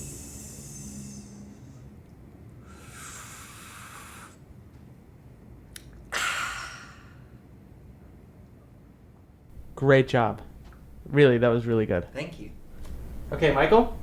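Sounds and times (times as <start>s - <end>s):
man hissing with his mouth: 0.0s - 1.6s, 2.7s - 4.4s, 6.2s - 7.0s
loud breathy gasp: 2.6s - 4.4s.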